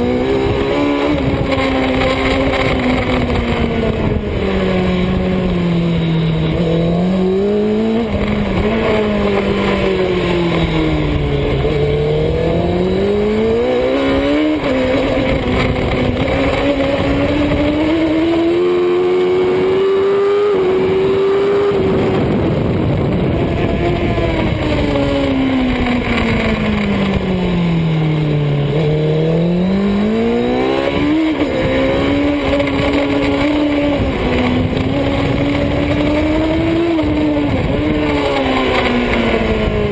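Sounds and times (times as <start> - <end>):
motorcycle engine revving: 0.0 - 39.9
wind noise: 0.0 - 39.9.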